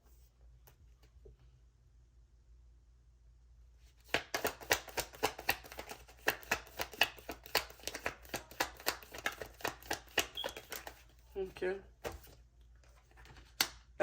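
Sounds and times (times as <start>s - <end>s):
cards being shuffled: 3.9s - 11.4s, 12.0s - 13.9s.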